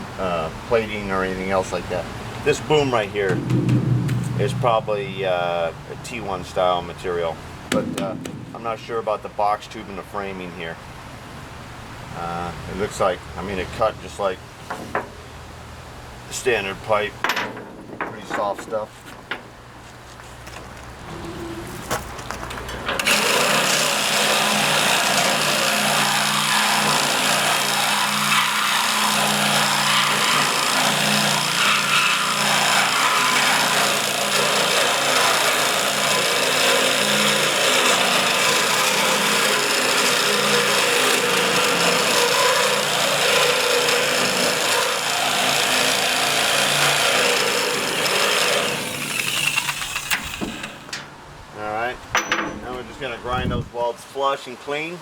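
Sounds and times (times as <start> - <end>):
power tool cutting steel pipe: 23.0 - 51.0.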